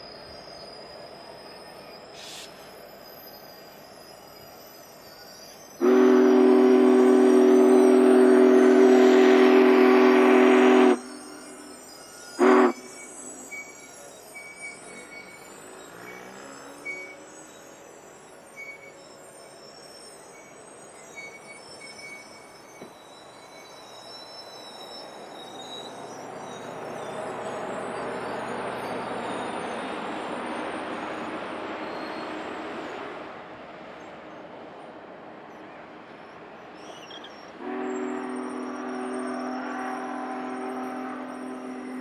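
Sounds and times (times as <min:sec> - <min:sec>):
high-pitched squeals: 0:00.0 - 0:33.3, 0:36.4 - 0:42.0
train rolling on rails: 0:00.0 - 0:42.0.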